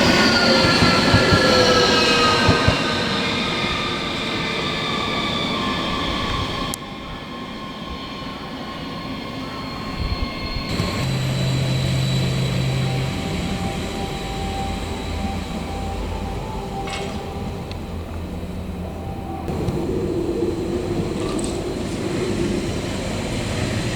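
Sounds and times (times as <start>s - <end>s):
train rumble: 0.0s - 23.9s
train whine of high tones: 0.0s - 23.9s
loud low hum: 10.6s - 23.9s.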